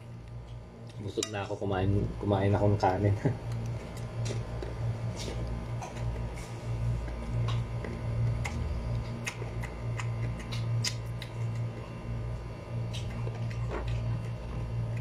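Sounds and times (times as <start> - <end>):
steady low hum: 0.0 - 15.0
chewing crunchy mango: 3.4 - 15.0.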